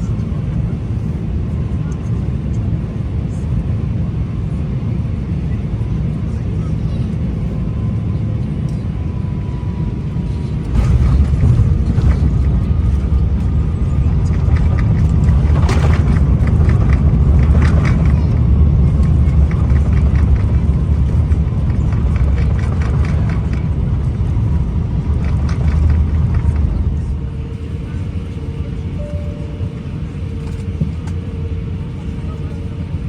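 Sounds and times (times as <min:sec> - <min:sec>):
vehicle rumbling in motion: 0:07.3 - 0:33.0
light rattles and clicks: 0:10.7 - 0:28.3.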